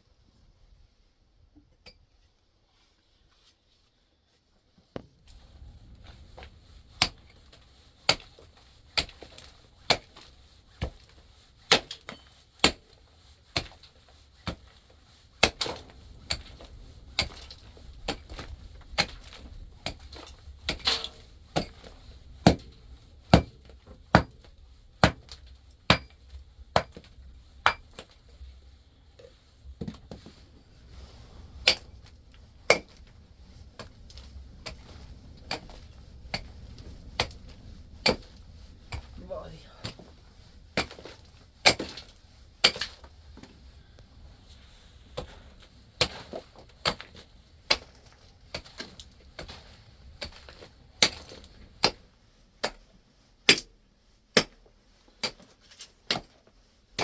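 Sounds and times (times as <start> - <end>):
low steady rumble: 5.2 - 9.8, 14.8 - 51.9.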